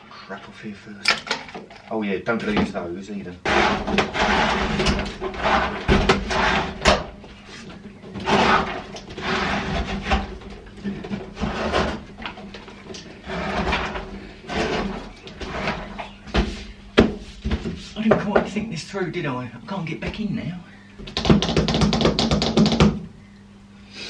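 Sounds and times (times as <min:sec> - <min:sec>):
objects clunking and scraping: 0:00.0 - 0:02.8, 0:03.4 - 0:18.7
faint low hum: 0:00.0 - 0:24.0
sharp knocks: 0:21.0 - 0:23.1.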